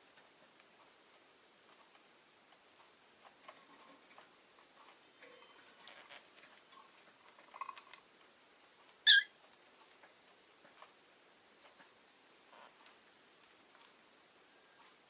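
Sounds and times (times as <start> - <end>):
small rustling sounds: 0.0 - 15.0
lovebird chirp: 9.0 - 9.3.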